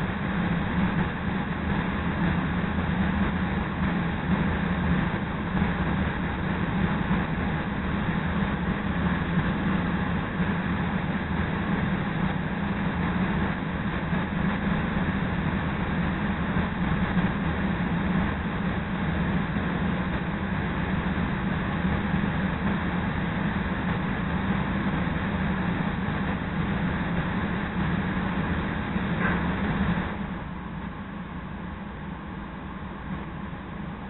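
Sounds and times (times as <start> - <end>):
train wheels rolling on rails: 0.0 - 30.4
steady low hum: 0.0 - 34.0.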